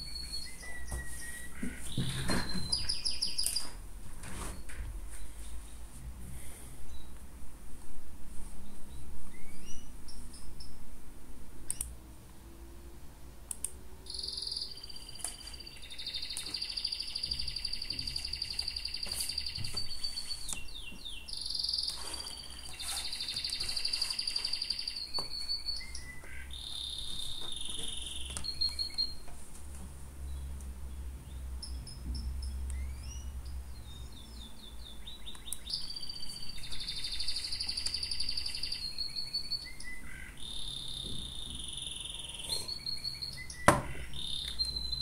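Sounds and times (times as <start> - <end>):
bird singing trills: 0.0 - 3.8, 14.0 - 29.2, 30.3 - 45.0.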